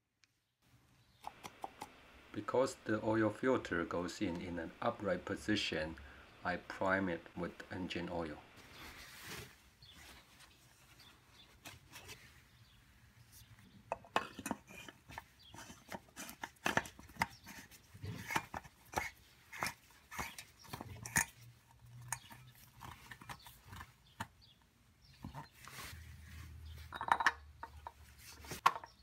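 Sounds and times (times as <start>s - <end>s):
tools and parts clinking: 13.9s - 24.4s, 26.9s - 29.0s.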